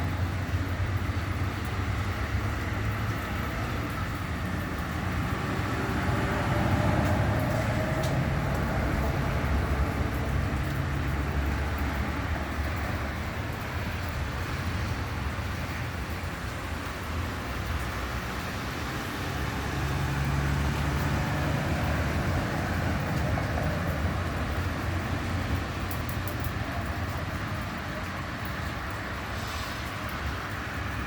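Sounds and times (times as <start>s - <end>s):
road noise hiss: 0.0s - 31.0s
traffic engine rumble: 0.0s - 31.0s.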